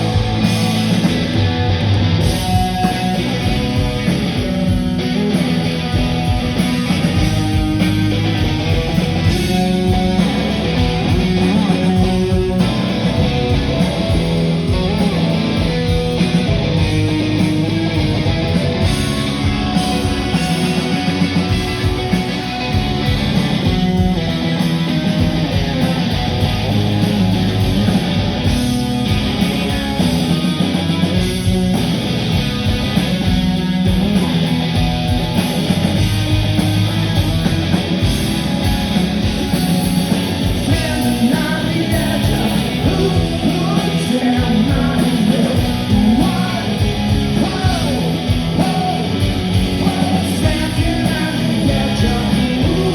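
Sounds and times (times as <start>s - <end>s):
electric guitar: 0.0s - 52.9s
live rock band: 0.0s - 52.9s.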